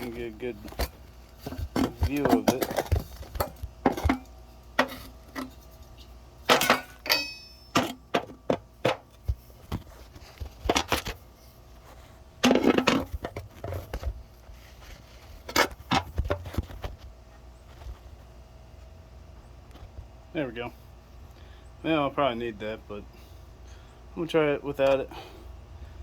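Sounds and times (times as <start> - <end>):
hand tools knocking and clinking: 1.5 - 5.5, 6.5 - 9.1
short ringing metal clink: 6.7 - 7.8.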